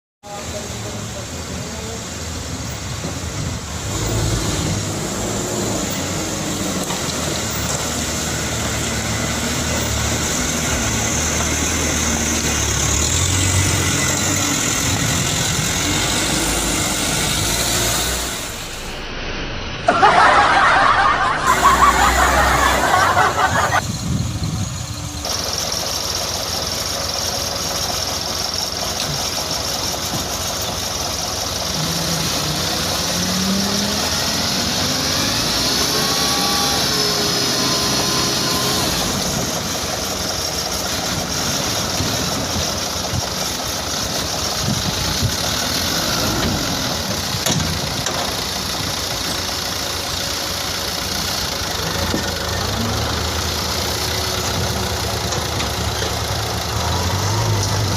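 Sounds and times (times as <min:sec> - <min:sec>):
truck engine running: 0:00.3 - 0:19.2, 0:19.8 - 0:57.9.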